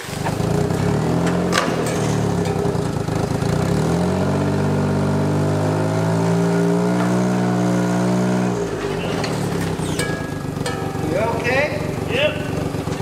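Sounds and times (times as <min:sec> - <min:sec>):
small tractor engine under load: 0:00.0 - 0:13.0.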